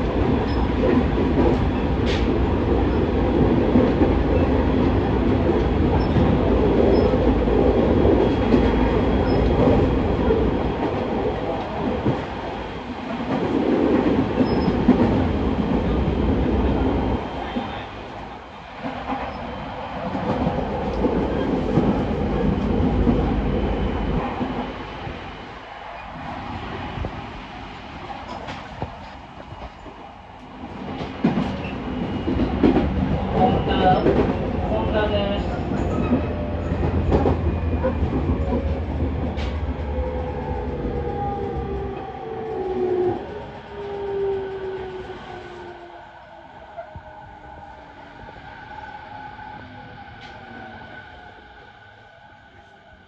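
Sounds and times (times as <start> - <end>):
clickety-clack over rail joints: 0.0 - 17.9, 18.8 - 24.8, 28.0 - 45.8
train wheels rumbling on rails: 0.0 - 53.0.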